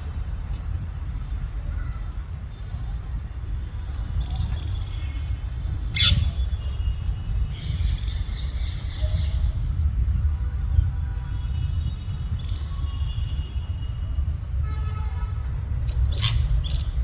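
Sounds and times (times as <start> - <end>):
parakeets squawking: 5.8 - 6.6, 15.8 - 17.0.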